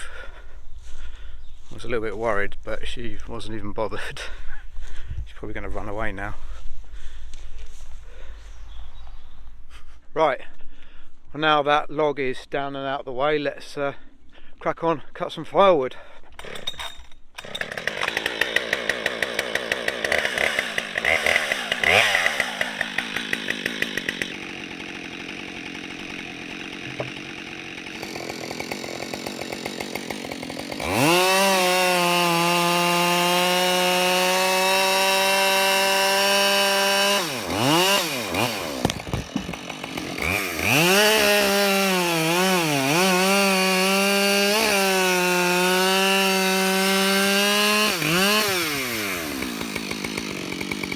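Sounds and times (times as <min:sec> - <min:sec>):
chainsaw cutting into log: 0:16.3 - 0:50.9.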